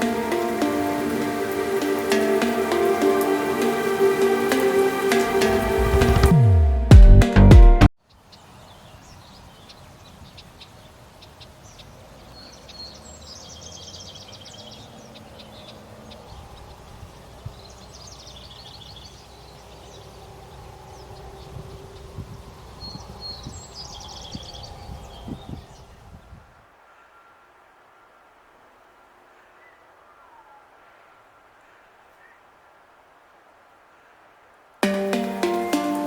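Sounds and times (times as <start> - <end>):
forest ambience: 0.0 - 6.9, 8.0 - 36.0
music with falling sweep: 0.0 - 7.9, 34.8 - 36.0.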